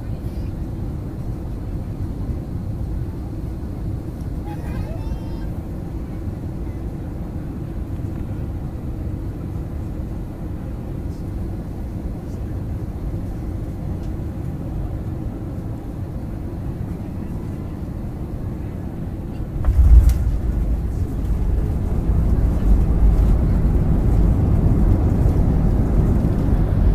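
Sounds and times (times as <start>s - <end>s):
airliner engines rumbling in cabin: 0.0s - 26.9s
wheels thumping onto runway: 19.6s - 23.5s.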